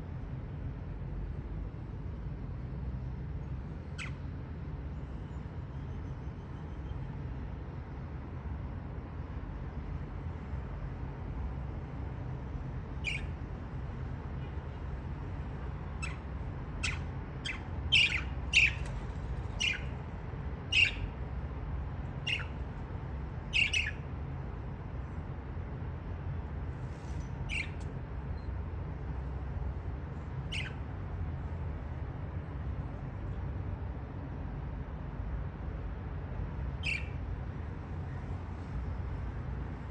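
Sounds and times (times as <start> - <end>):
steady low hum: 0.0 - 39.9
budgerigars squawking and chirping: 16.8 - 18.8, 20.7 - 21.0, 22.2 - 22.5, 23.6 - 24.0, 27.5 - 27.7, 30.5 - 30.8.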